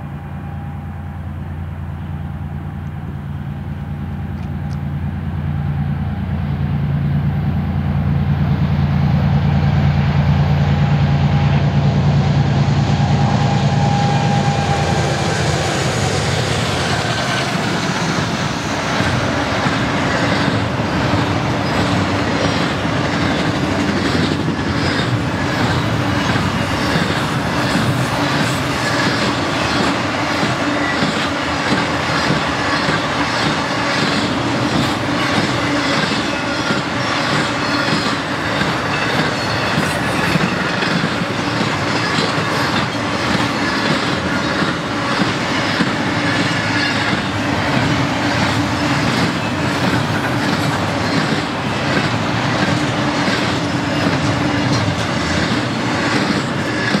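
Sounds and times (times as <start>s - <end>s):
freight train wheels rumbling: 0.0s - 57.0s
wheels clicking over rail joints: 18.9s - 57.0s.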